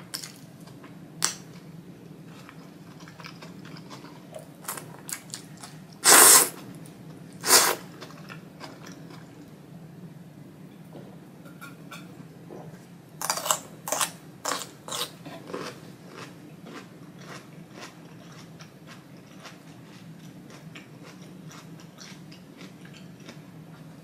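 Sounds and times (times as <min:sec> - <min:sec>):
soft steady chewing: 0:00.2 - 0:06.0, 0:06.6 - 0:09.6, 0:12.6 - 0:24.0
loud crunchy chewing: 0:13.2 - 0:23.4.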